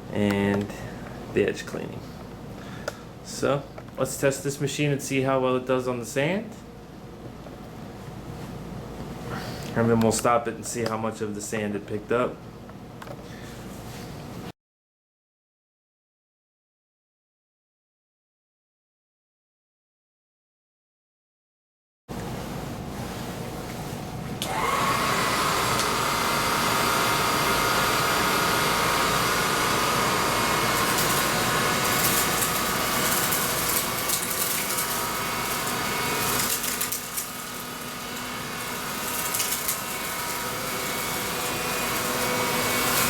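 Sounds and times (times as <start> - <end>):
vacuum cleaner motor whine: 24.4 - 43.0.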